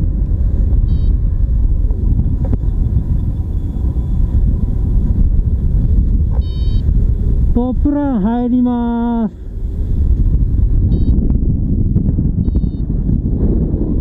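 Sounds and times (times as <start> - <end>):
wind rushing over microphone: 0.0 - 14.0
high electronic beeps: 0.9 - 1.2, 6.4 - 6.8, 10.9 - 11.2, 12.4 - 12.9.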